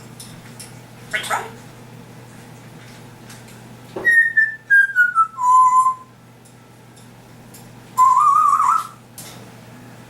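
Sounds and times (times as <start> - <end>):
parrot whistling descending notes: 4.0 - 6.1, 8.0 - 9.0.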